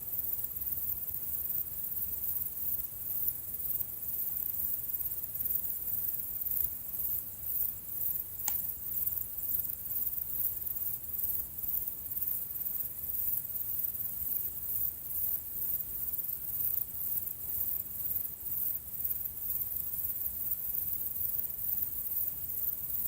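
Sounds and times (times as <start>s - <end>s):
insects chirring: 0.0s - 23.0s
brief click: 8.4s - 8.6s.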